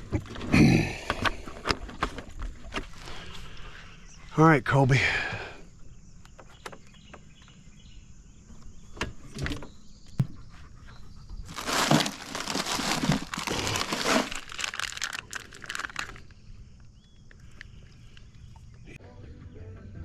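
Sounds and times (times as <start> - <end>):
rustling and crinkling: 11.4 - 18.5.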